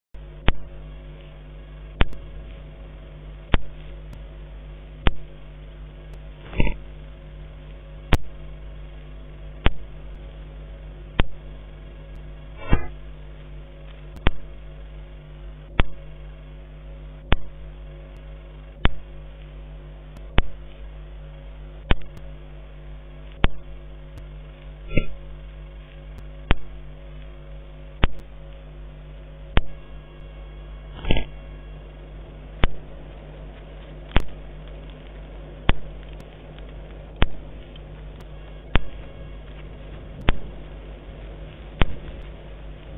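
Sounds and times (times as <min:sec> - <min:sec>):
electrical hum: 0:00.0 - 0:42.9
sharp clicks: 0:00.4 - 0:01.3, 0:11.1 - 0:11.4, 0:13.8 - 0:14.5, 0:15.7 - 0:16.1, 0:17.3 - 0:19.5, 0:21.8 - 0:22.3, 0:23.3 - 0:25.2, 0:28.0 - 0:28.6, 0:32.6 - 0:40.8, 0:41.6 - 0:42.9.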